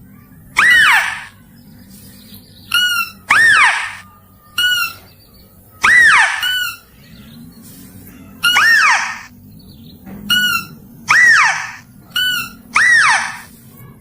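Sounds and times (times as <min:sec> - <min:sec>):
high animal calls: 0:00.5 - 0:01.4, 0:02.7 - 0:05.1, 0:05.7 - 0:07.4, 0:08.2 - 0:09.4, 0:10.3 - 0:13.6.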